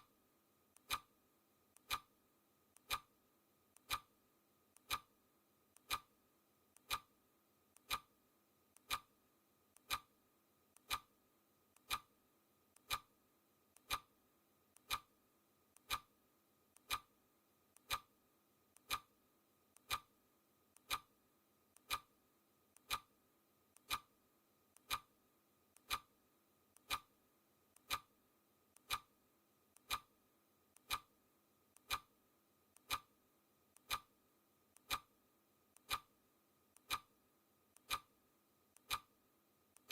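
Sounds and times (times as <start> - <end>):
clock ticking: 0.8 - 1.1, 1.7 - 2.1, 2.8 - 3.1, 3.7 - 4.1, 4.7 - 5.1, 5.7 - 6.1, 6.7 - 7.1, 7.8 - 8.1, 8.7 - 9.1, 9.7 - 10.1, 10.7 - 11.1, 11.7 - 12.1, 12.8 - 13.1, 13.7 - 14.1, 14.7 - 15.1, 15.7 - 16.1, 16.7 - 17.1, 17.7 - 18.1, 18.7 - 19.1, 19.7 - 20.1, 20.7 - 21.1, 21.7 - 22.1, 22.7 - 24.1, 24.8 - 25.1, 25.7 - 27.1, 27.8 - 28.1, 28.8 - 29.1, 29.7 - 30.1, 30.8 - 31.1, 31.8 - 32.1, 32.7 - 33.1, 33.8 - 34.1, 34.8 - 35.2, 35.8 - 37.2, 37.8 - 39.2.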